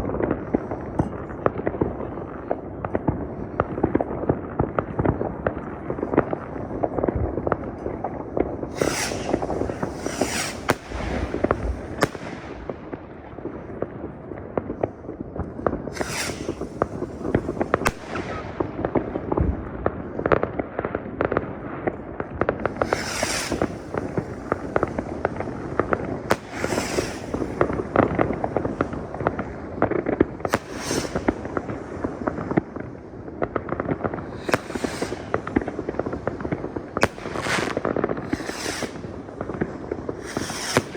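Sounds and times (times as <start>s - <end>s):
firecrackers crackling: 0.0s - 40.9s
fireworks hissing burst: 8.7s - 12.8s, 15.9s - 18.6s, 22.6s - 32.8s, 34.0s - 40.9s.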